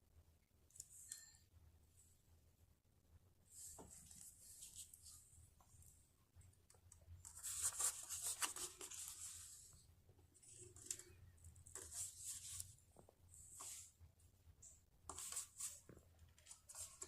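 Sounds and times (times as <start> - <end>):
faint rustling and scratching: 3.4 - 6.0, 6.7 - 17.0.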